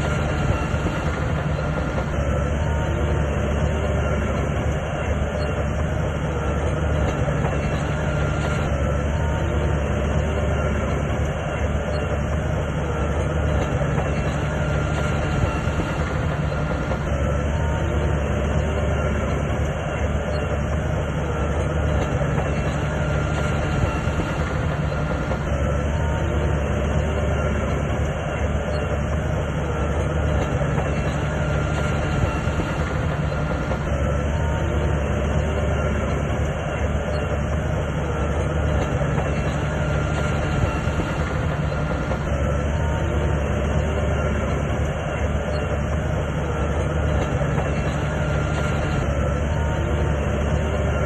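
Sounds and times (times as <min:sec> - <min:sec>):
bulldozer diesel engine droning: 0:00.0 - 0:51.0
steel tracks clattering: 0:00.0 - 0:51.0.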